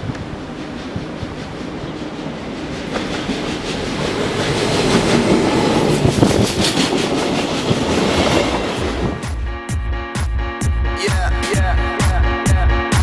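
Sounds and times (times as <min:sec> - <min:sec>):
wheels clicking over rail joints: 0:00.0 - 0:09.4
electric railcar running: 0:00.0 - 0:09.5.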